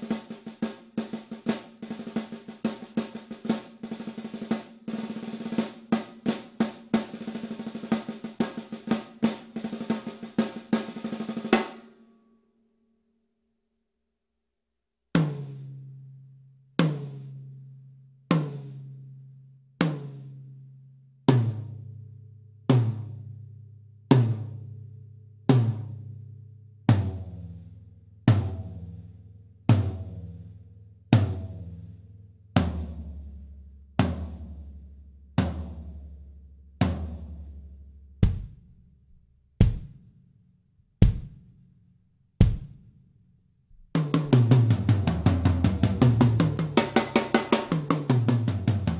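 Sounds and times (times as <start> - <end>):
bass drum hits: 38.2 - 38.6.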